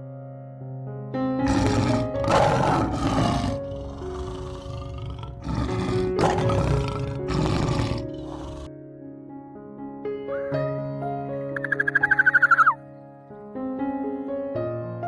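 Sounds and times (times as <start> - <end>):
background music with held notes: 0.0 - 15.0
large animal calling: 1.5 - 8.7, 11.6 - 12.8.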